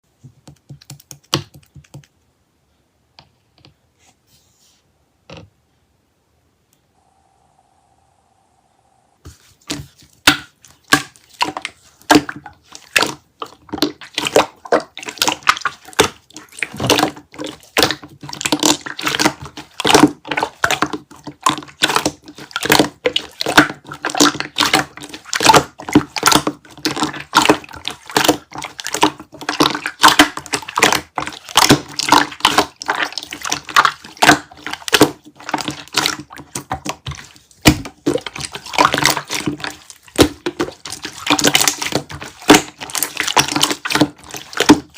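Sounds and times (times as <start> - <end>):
faint low tone: 6.6 - 9.2
sticky material crackling and squishing: 9.7 - 44.9.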